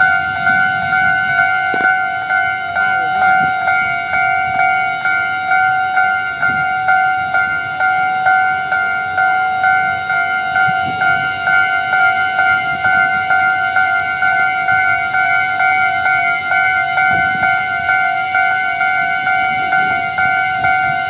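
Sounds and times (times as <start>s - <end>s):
level crossing warning chime: 0.0s - 21.0s.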